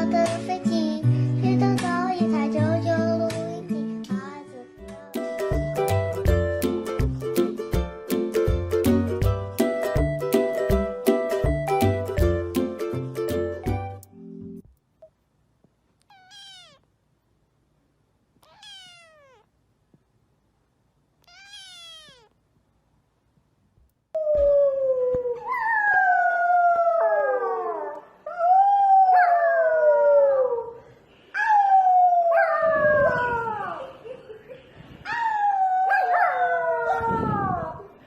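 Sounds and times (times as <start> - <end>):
cat meowing faintly: 16.0 - 16.9, 18.4 - 19.5, 21.2 - 22.4
cat howling calls: 16.1 - 16.8, 18.5 - 19.4, 21.3 - 22.3.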